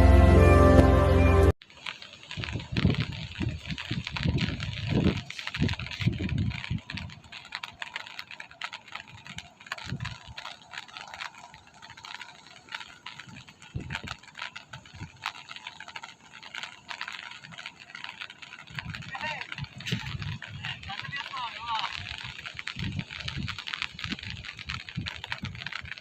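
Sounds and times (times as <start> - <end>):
low bumps: 0.0 - 1.6
rain falling: 0.0 - 26.0
raindrops ticking: 1.6 - 26.0.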